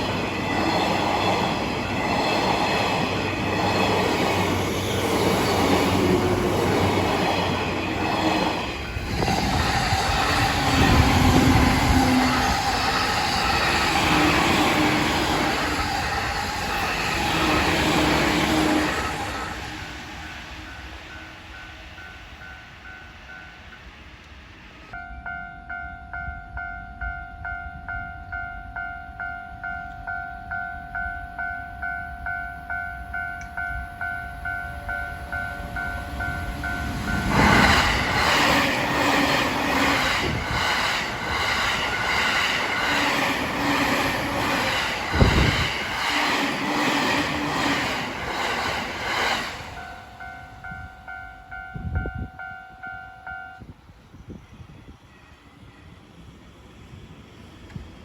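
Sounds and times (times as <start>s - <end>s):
train wheels clattering: 36.2s - 50.2s.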